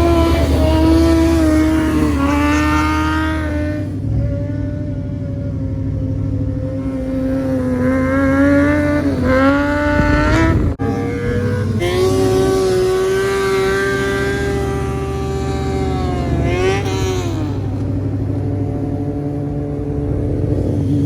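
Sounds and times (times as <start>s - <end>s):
vehicle engines in traffic: 0.0s - 21.0s.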